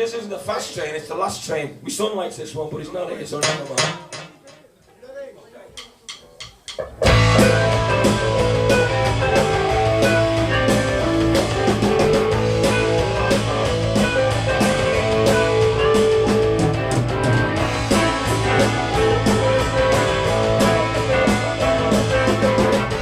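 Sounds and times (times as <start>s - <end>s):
drum kit beat: 3.4s - 4.8s, 5.7s - 23.0s
electric guitar: 6.8s - 23.0s
bass line: 7.0s - 23.0s.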